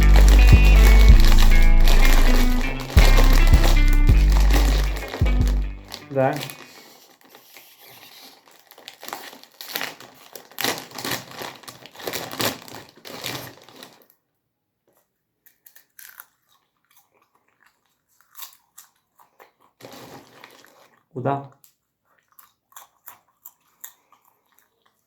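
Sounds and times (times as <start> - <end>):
packaging crumpled by hand: 0.0 - 14.2, 19.8 - 21.0.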